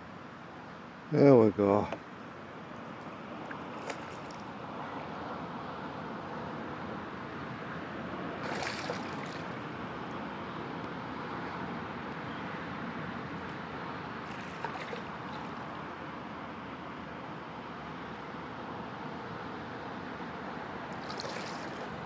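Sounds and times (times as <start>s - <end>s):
wind: 0.0s - 22.0s
rushing water: 8.3s - 9.8s, 13.4s - 15.9s, 20.8s - 22.0s
fish splashing at surface: 8.4s - 9.6s, 14.3s - 15.5s, 21.0s - 22.0s.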